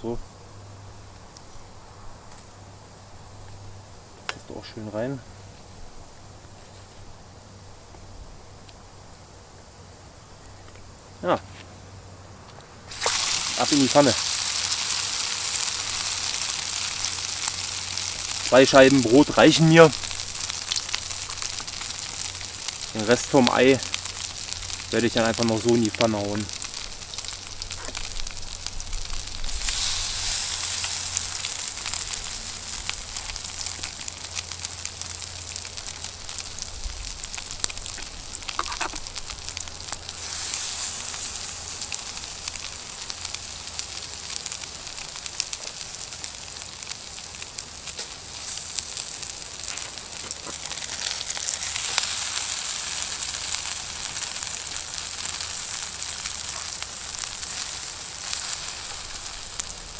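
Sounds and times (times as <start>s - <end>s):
egg frying in oil: 12.9s - 59.9s.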